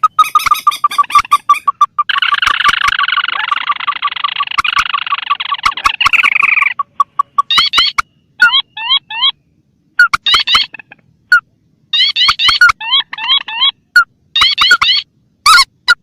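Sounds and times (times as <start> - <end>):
rail bird calls: 0.0 - 16.0
sharp clicks: 2.2 - 3.1.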